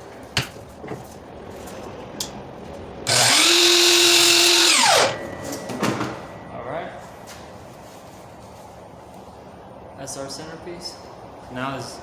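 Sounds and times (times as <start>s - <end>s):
miter saw cutting wood: 3.1s - 5.2s
saw motor winding down: 3.1s - 5.2s.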